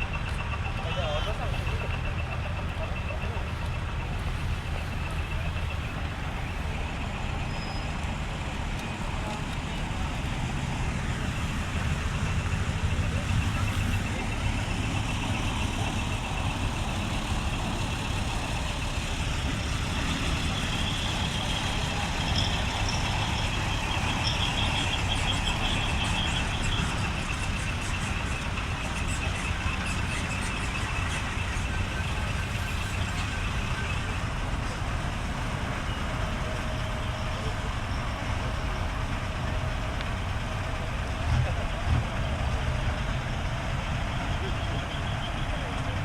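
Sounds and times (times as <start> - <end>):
truck diesel engine idling: 0.0 - 46.0.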